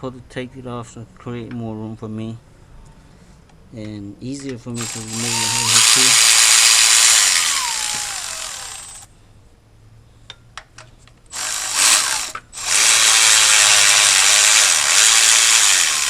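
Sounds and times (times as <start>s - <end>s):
power ratchet running: 4.8s - 9.1s, 11.4s - 16.0s.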